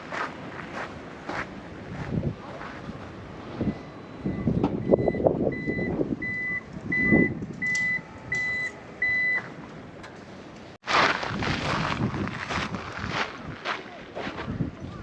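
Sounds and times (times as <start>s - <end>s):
wind on microphone: 0.0s - 8.6s, 11.1s - 15.0s
reversing alarm beeps: 3.6s - 9.5s.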